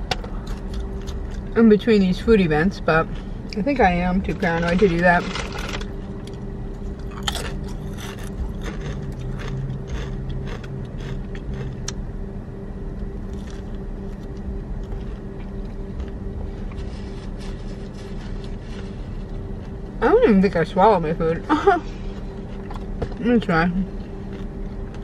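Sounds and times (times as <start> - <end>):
car engine hum: 0.0 - 25.0
person chewing bread: 0.3 - 1.6, 5.5 - 12.0, 13.0 - 20.0, 22.0 - 23.0, 23.9 - 25.0.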